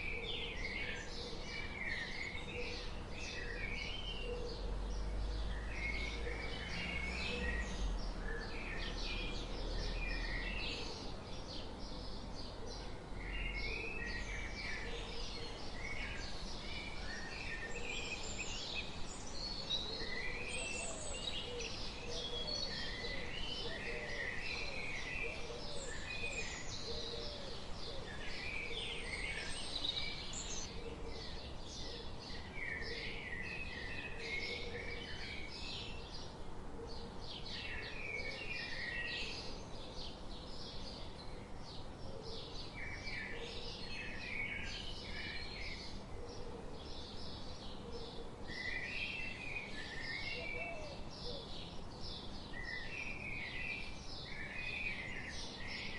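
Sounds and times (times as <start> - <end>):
birds chirping: 0.0 - 36.4.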